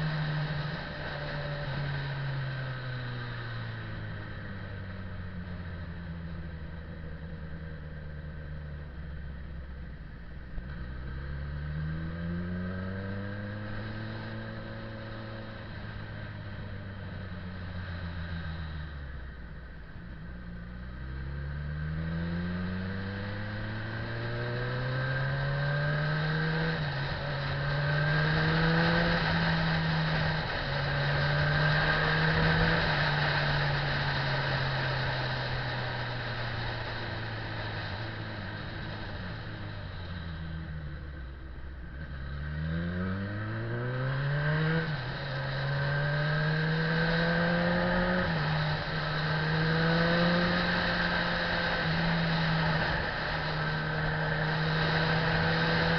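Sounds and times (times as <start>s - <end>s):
road noise: 0.0s - 55.9s
motorcycle engine revving: 20.9s - 55.9s.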